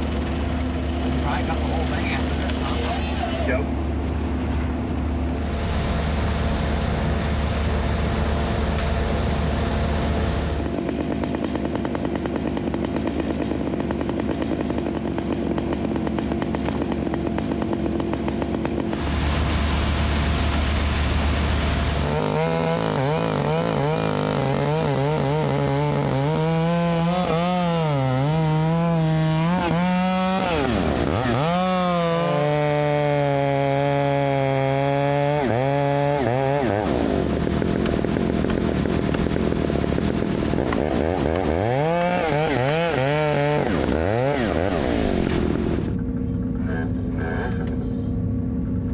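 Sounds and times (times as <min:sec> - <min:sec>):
chainsaw revving: 0:00.0 - 0:03.9, 0:05.4 - 0:46.0.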